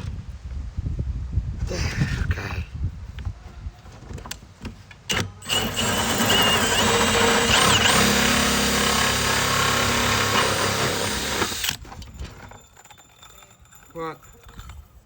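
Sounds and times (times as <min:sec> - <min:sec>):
power drill cutting plastic: 0:05.1 - 0:11.8.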